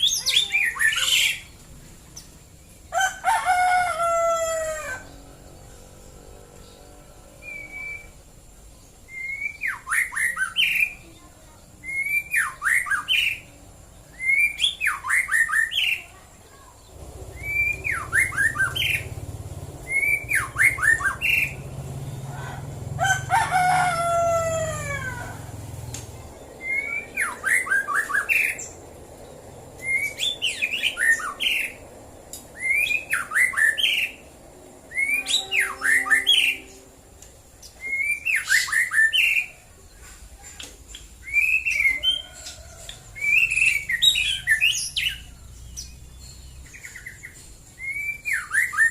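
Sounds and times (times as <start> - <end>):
bird singing whistled notes: 7.4 - 16.2, 17.2 - 19.2, 19.8 - 22.2, 26.6 - 28.8, 29.8 - 31.8, 32.5 - 34.3, 34.9 - 36.9, 37.6 - 39.7, 40.9 - 42.6, 43.2 - 48.9
low rumble: 16.8 - 33.4.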